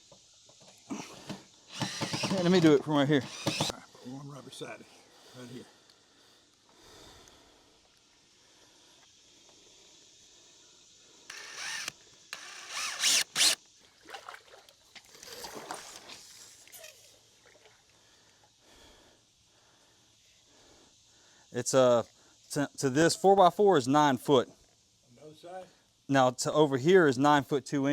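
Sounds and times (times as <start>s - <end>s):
power drill driving screws: 1.7s - 3.7s, 11.3s - 13.6s.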